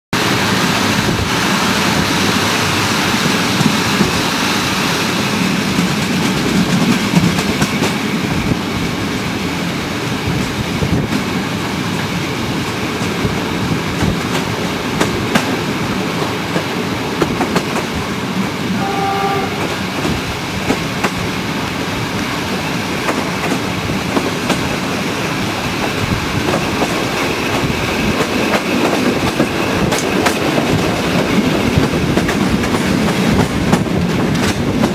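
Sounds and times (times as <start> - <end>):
train wheels rushing on rail: 0.2 - 34.9
rail joint clicks: 1.8 - 8.9, 10.2 - 34.9
train horn blast: 18.7 - 20.1.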